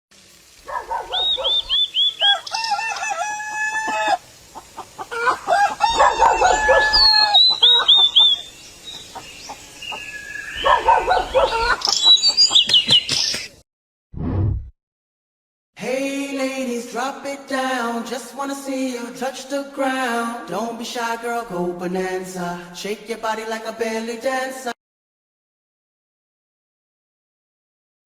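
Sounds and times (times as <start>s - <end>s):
birds calling rapidly: 0.7s - 13.6s.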